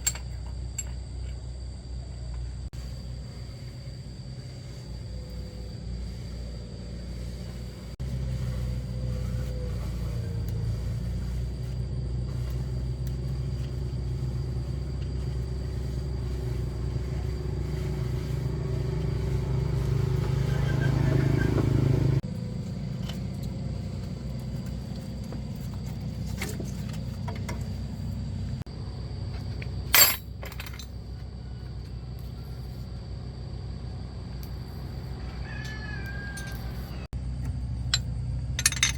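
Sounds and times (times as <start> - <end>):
pickup truck engine running: 2.8 - 29.1.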